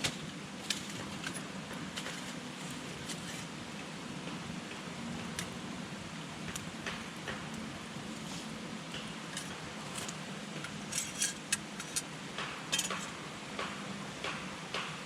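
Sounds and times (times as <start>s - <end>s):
fire hissing softly: 0.0s - 13.4s
campfire crackling and popping: 6.4s - 8.2s.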